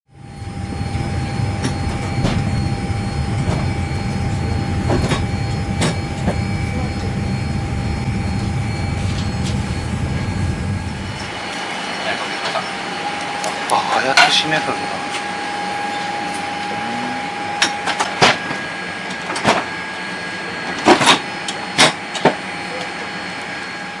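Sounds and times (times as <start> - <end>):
thin steady whine: 0.1 - 24.0
cabin ventilation rumble: 0.2 - 11.5.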